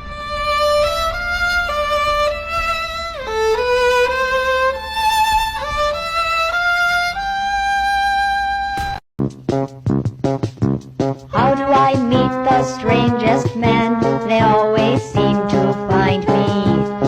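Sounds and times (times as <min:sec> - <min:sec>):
solo violin slow melody: 0:00.0 - 0:08.8.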